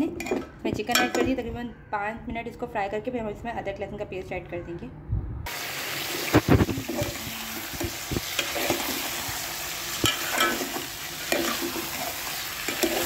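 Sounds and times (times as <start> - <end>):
food sizzling in oil: 5.5 - 13.0.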